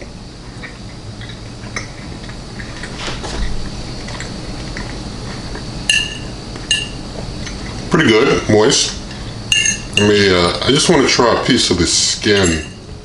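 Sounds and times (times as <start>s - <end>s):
metal fork clinking on plate: 9.5s - 10.2s, 12.3s - 12.8s.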